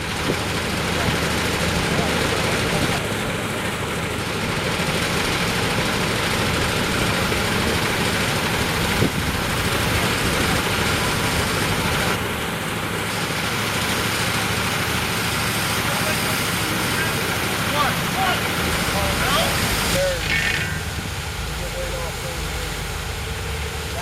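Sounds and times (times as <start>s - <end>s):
heavy vehicle engine running: 0.0s - 24.0s
loud rushing noise: 15.3s - 24.0s.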